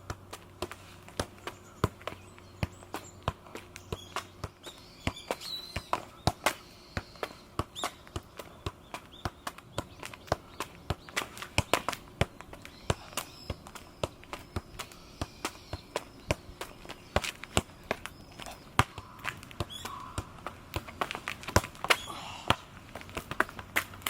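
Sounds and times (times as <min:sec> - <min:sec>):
football taps and thuds: 0:00.0 - 0:24.0
birds chirping: 0:00.8 - 0:24.0.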